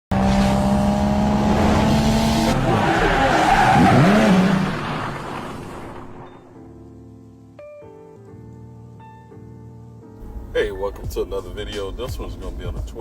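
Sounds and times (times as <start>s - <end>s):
car engine: 0.1s - 6.5s, 10.2s - 13.0s.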